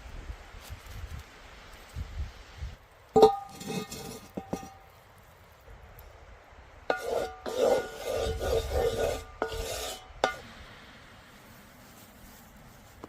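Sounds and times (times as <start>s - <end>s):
metal utensil scraping cookware: 3.2s - 4.8s, 6.9s - 10.4s.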